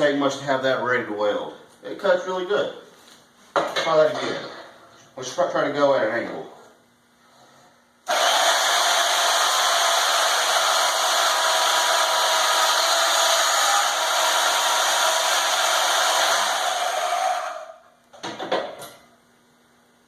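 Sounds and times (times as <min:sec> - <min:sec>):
band saw cutting metal: 0:08.1 - 0:17.8.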